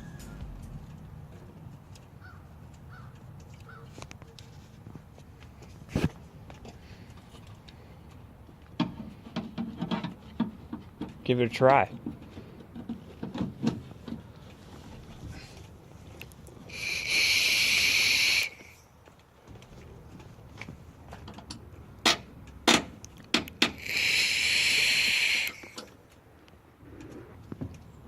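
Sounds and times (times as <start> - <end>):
high hiss bursts: 16.7 - 18.8, 23.7 - 25.9.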